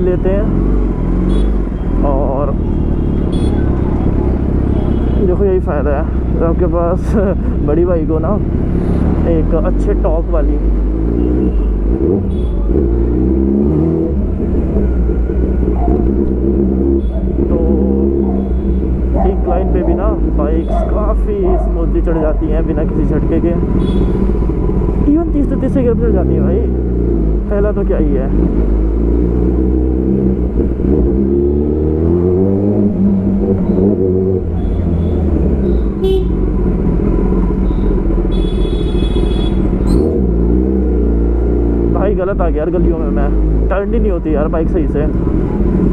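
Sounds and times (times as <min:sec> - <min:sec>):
motorcycle engine low rumble: 0:00.0 - 0:45.9
vehicle horn beeping: 0:01.2 - 0:01.9, 0:02.9 - 0:03.8, 0:23.7 - 0:24.3, 0:34.6 - 0:36.5, 0:37.7 - 0:40.0.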